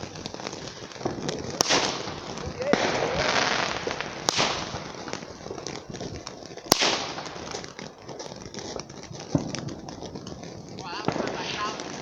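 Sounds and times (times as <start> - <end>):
crackling hiss: 0.0 - 12.0
firework bangs: 0.0 - 12.0
firework hiss: 0.0 - 12.0.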